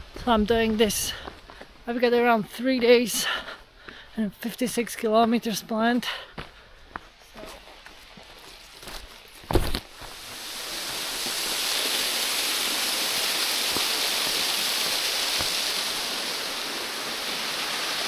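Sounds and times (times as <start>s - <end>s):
stream rushing: 8.2s - 18.0s.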